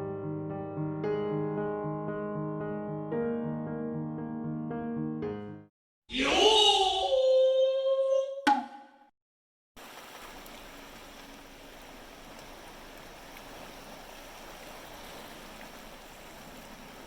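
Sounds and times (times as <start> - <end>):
sea surf on a beach: 9.8 - 17.0.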